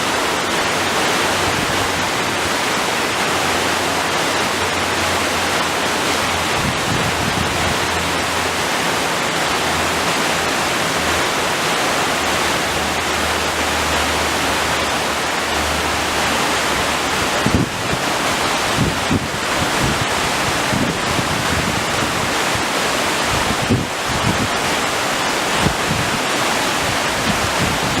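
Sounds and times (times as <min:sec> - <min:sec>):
wind bumping microphone: 0:00.0 - 0:11.3, 0:17.1 - 0:24.9, 0:25.5 - 0:28.0
waterfall roaring: 0:00.0 - 0:28.0.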